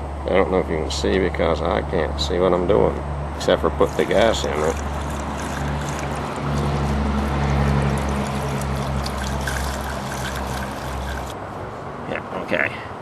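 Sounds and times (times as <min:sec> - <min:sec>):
gasoline pouring through a funnel: 0:03.8 - 0:11.4.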